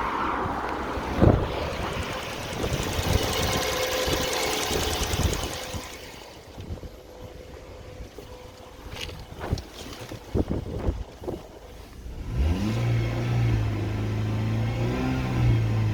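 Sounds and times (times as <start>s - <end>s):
car engine knocking: 1.3s - 6.2s.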